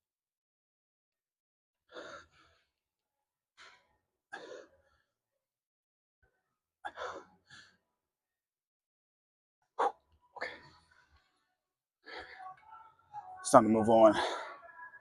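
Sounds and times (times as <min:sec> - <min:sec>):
man breathing hard: 0:01.9 - 0:02.8, 0:06.9 - 0:07.9, 0:09.8 - 0:12.7, 0:14.2 - 0:14.7.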